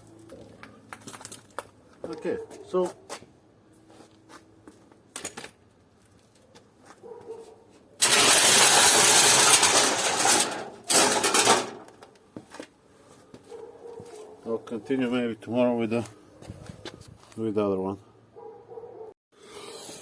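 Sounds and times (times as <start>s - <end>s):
clatter of small metal pieces: 8.0s - 12.0s.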